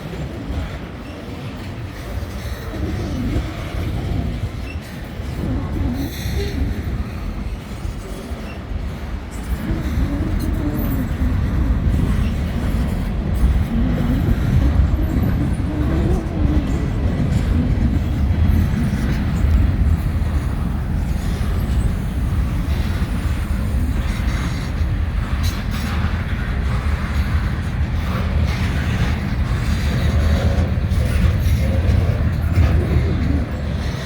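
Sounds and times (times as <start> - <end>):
freight train wheels rumbling on rail: 0.0 - 34.0.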